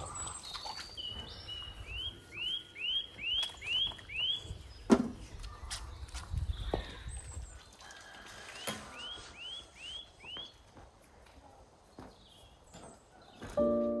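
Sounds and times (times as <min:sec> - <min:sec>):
piano music: 0:13.6 - 0:14.0.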